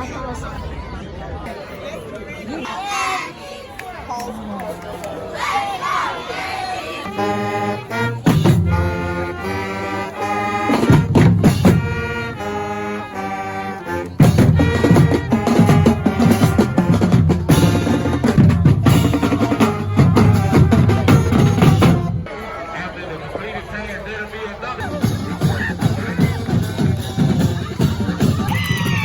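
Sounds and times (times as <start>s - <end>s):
marching band playing: 5.8s - 23.0s, 24.4s - 29.0s.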